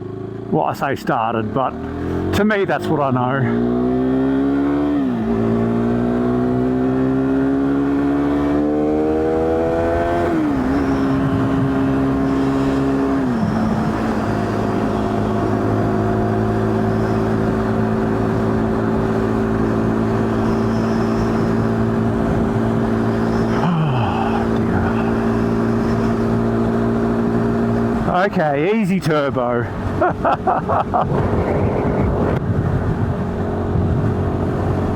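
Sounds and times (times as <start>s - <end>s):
motorcycle engine accelerating: 0.0s - 34.9s
wind on microphone: 9.4s - 26.4s, 30.7s - 34.9s.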